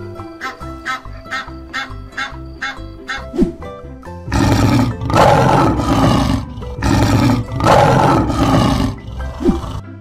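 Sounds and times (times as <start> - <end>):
lion roaring: 4.3 - 9.8.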